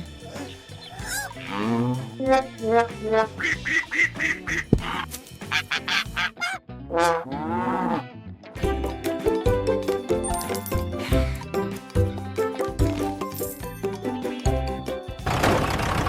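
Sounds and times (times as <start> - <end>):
background music: 0.0 - 16.0
cartoon duck quacking: 1.1 - 7.3.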